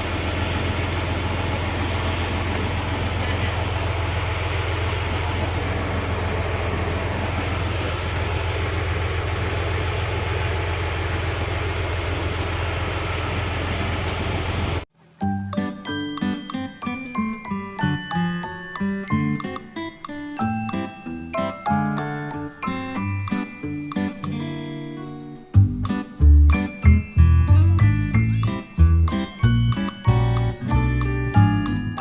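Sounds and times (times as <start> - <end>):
motorboat engine running: 0.0 - 14.8
water noise: 0.0 - 14.8.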